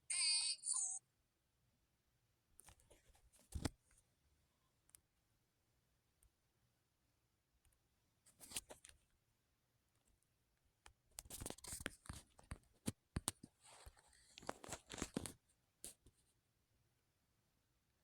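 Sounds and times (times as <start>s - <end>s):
rustling and scraping handling: 11.2s - 16.4s.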